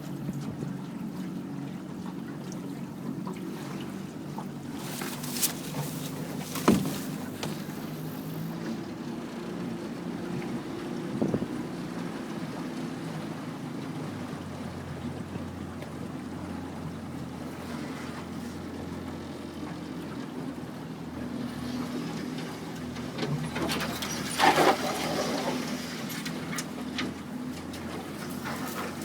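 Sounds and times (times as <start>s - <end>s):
water noise: 0.0s - 19.1s
boat motor running: 0.0s - 29.0s.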